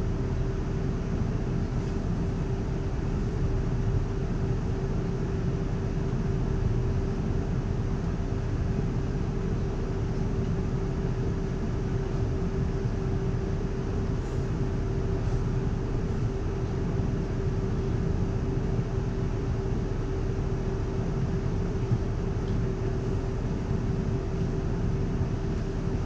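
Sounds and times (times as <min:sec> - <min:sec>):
constant hum: 0:00.0 - 0:26.0
train cabin rumble: 0:09.3 - 0:26.0.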